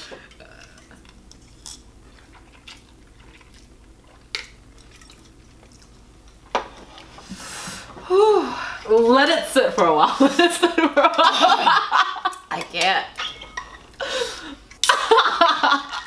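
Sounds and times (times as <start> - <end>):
chewing noodles: 0.5 - 6.4.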